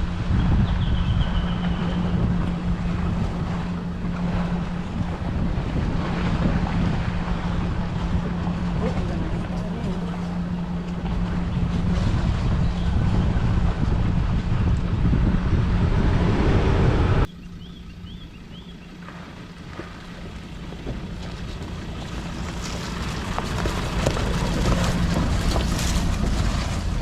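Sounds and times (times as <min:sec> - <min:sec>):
wind noise on microphone: 0:00.0 - 0:17.3
vehicle engine hum: 0:00.0 - 0:27.0
bird chirps: 0:17.3 - 0:18.9
gravel clicks: 0:20.2 - 0:27.0.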